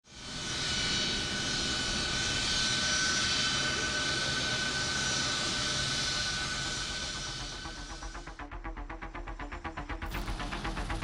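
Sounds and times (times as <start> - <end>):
aircraft engine running: 0.3 - 8.6.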